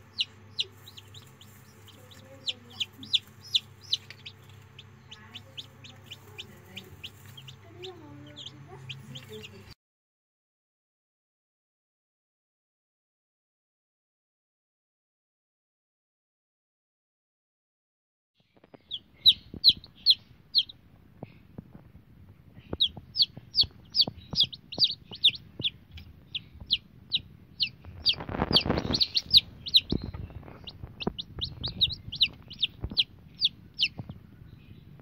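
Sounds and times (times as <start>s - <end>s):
chicks peeping: 0.0s - 9.8s, 18.6s - 35.0s.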